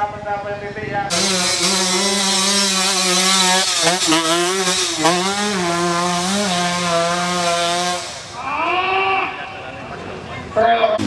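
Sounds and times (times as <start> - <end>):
motorcycle engine revving hard: 1.1 - 8.4.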